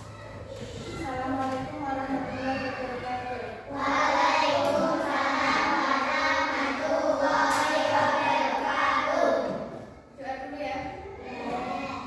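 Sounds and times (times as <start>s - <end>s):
children singing in unison: 3.7s - 9.8s.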